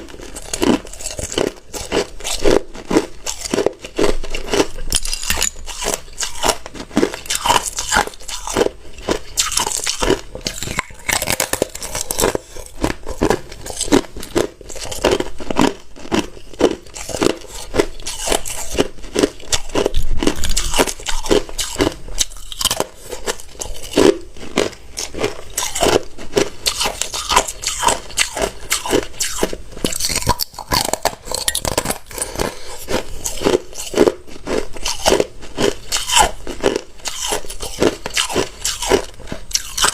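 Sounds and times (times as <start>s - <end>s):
ice crunching while chewed: 0.0s - 39.9s.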